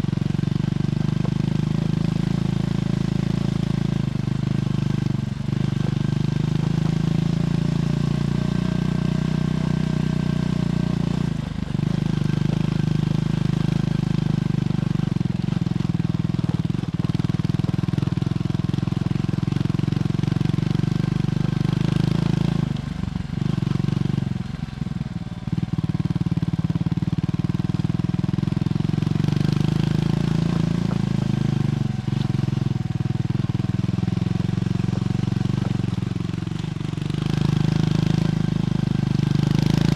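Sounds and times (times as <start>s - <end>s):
motorcycle engine exhaust: 0.0s - 39.9s.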